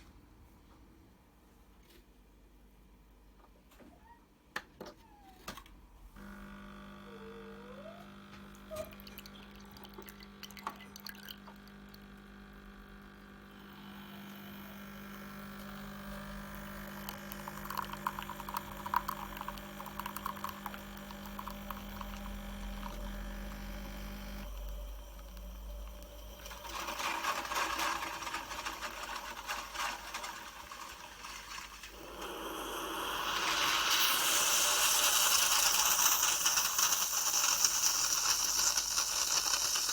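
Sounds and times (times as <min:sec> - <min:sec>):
coffee machine pump hum: 0:06.0 - 0:39.9
liquid pouring into cup: 0:08.8 - 0:12.0, 0:16.6 - 0:39.9
machine hissing and sputtering: 0:17.4 - 0:39.9.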